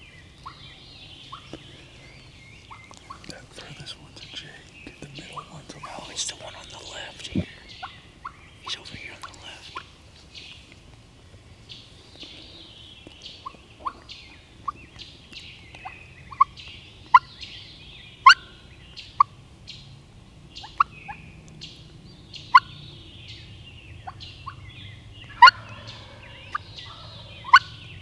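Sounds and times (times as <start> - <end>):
songbirds singing: 0.0 - 28.0
turkeys gobbling: 25.3 - 27.8.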